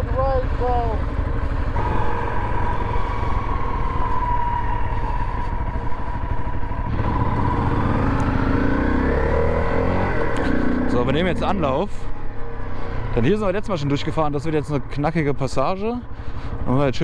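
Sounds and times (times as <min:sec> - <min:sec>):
low rumble: 0:00.0 - 0:08.8
dirt bike engine drone: 0:00.0 - 0:16.8.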